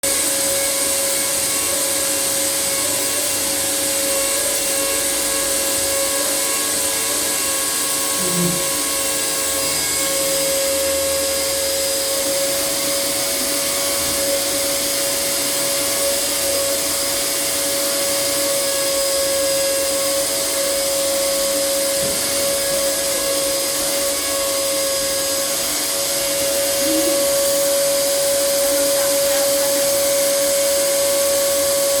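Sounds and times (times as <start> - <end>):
vacuum cleaner running: 0.0 - 32.0.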